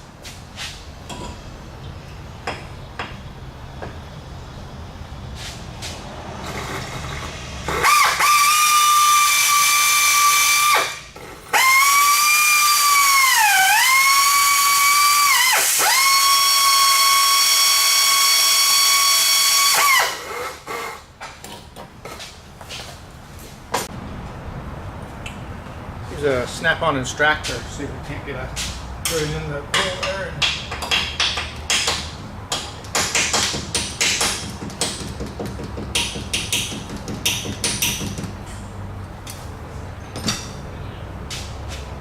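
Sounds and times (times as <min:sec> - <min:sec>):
drill whining: 0:06.4 - 0:21.0.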